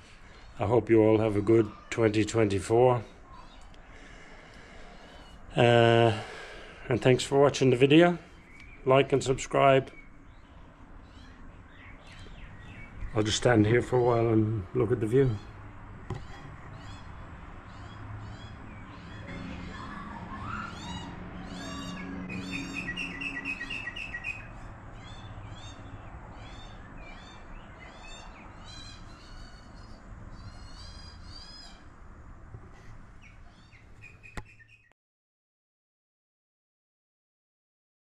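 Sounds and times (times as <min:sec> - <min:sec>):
birds chirping: 0:00.0 - 0:32.0, 0:32.7 - 0:34.9
bird trill: 0:16.2 - 0:31.9, 0:33.2 - 0:34.9.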